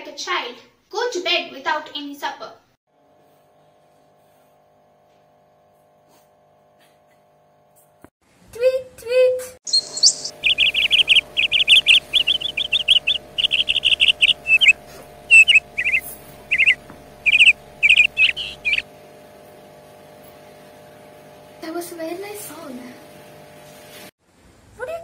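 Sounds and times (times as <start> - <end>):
songbird chirping trills: 9.7 - 18.8
steady low hum: 9.7 - 18.8.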